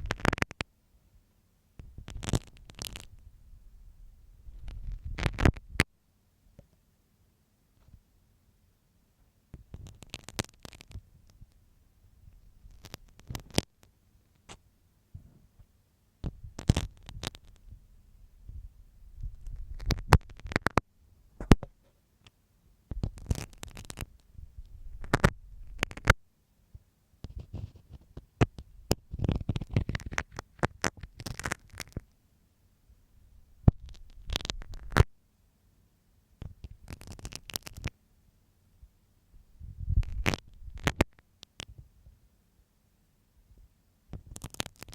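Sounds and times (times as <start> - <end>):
pin scraping and tapping microphone: 0.0 - 0.6, 1.8 - 3.2, 4.4 - 5.9, 9.6 - 11.6, 12.3 - 13.9, 16.2 - 17.8, 19.2 - 20.8, 21.4 - 22.0, 22.9 - 26.2, 27.2 - 32.0, 33.6 - 35.1, 36.4 - 37.9, 39.7 - 41.8, 44.2 - 44.9.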